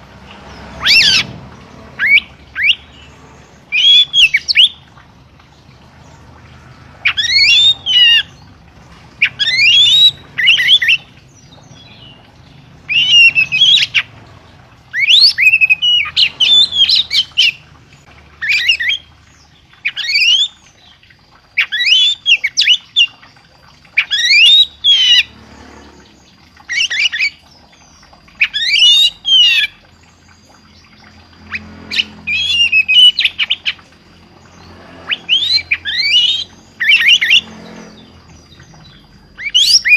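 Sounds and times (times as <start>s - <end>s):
songbird singing whistled notes: 3.7s - 4.8s, 9.2s - 12.2s, 12.9s - 14.1s, 14.9s - 17.6s, 24.0s - 25.3s, 26.6s - 33.9s, 34.6s - 39.9s.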